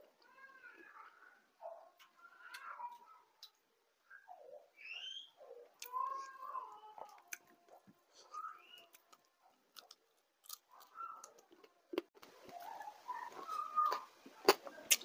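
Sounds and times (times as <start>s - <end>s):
wet chewing and smacking: 6.9s - 15.0s
high-pitched animal calls: 12.6s - 14.1s.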